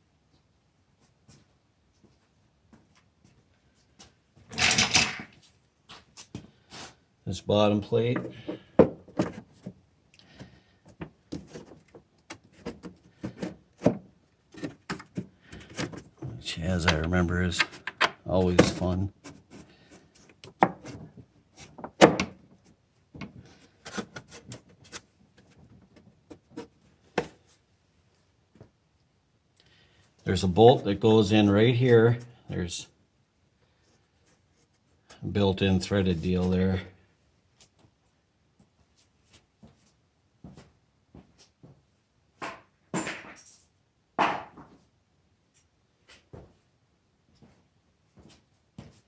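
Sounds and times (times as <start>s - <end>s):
metal parts and tools clinking: 42.9s - 43.8s.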